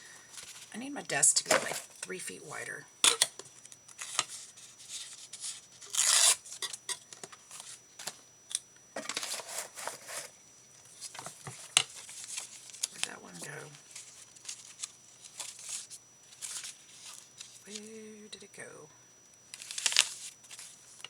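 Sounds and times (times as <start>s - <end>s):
paper rustling: 9.0s - 17.8s, 19.6s - 21.0s.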